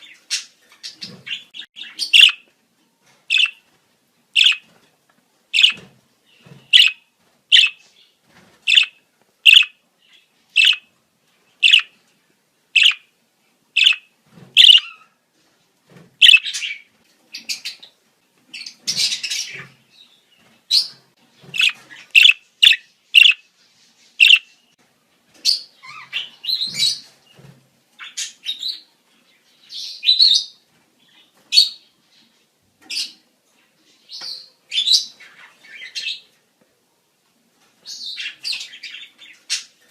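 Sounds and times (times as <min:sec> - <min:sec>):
budgerigars chirping and warbling: 0:00.0 - 0:02.5, 0:03.3 - 0:03.7, 0:04.4 - 0:04.7, 0:05.6 - 0:07.8, 0:08.6 - 0:10.9, 0:11.6 - 0:12.0, 0:12.8 - 0:13.1, 0:13.8 - 0:15.1, 0:16.2 - 0:17.9, 0:18.6 - 0:19.8, 0:20.7 - 0:23.5, 0:24.1 - 0:24.6, 0:25.5 - 0:27.1.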